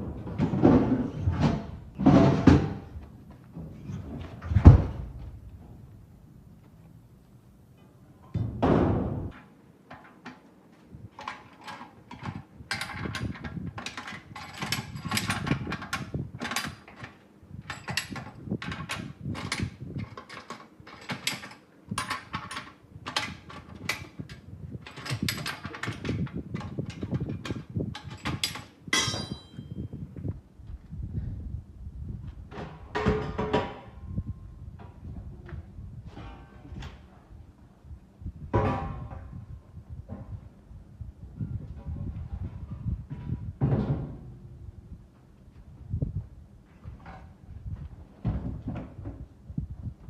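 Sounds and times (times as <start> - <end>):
tools knocking and scraping: 0.1 - 5.8, 7.8 - 29.9, 32.5 - 34.2, 38.5 - 39.4
heavy thud: 8.4 - 9.3
short metallic ring: 29.0 - 29.9.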